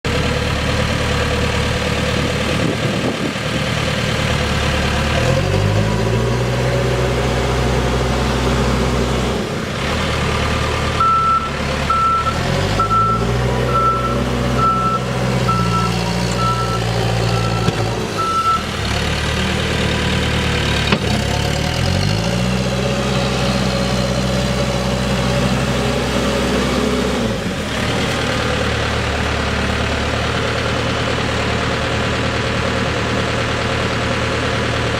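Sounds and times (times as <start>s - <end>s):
diesel engine idling and revving: 0.0s - 34.9s
backup alarm beeping: 11.0s - 18.7s.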